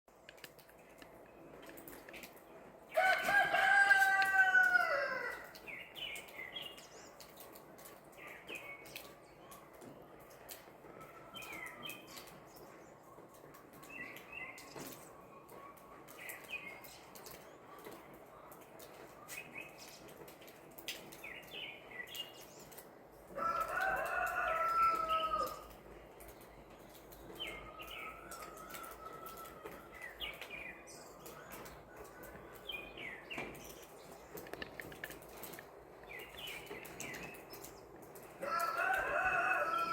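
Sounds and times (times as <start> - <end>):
faint rain patter: 0.1 - 39.9
rooster crowing: 3.0 - 5.5, 23.4 - 25.7, 38.4 - 39.9
small birds chirping: 4.7 - 39.9.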